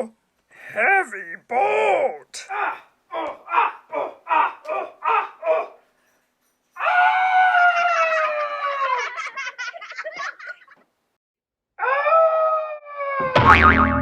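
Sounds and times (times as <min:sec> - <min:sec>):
choppy laugh-like sounds: 0:07.6 - 0:10.9
person crying out: 0:11.8 - 0:13.2.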